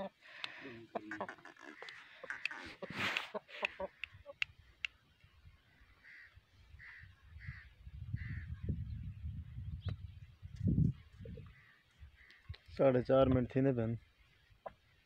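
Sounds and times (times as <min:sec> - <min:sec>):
bird harsh calls: 0:00.8 - 0:04.9, 0:05.7 - 0:08.8.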